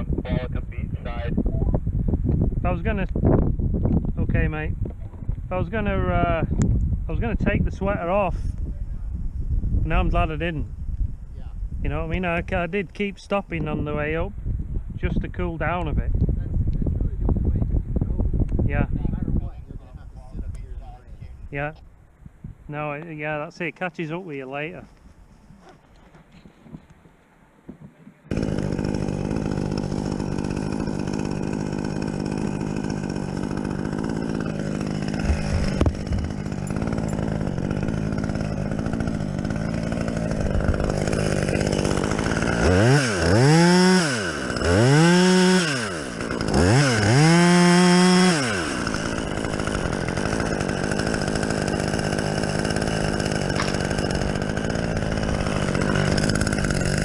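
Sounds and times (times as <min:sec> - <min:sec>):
chainsaw running and revving: 0:28.3 - 0:57.0.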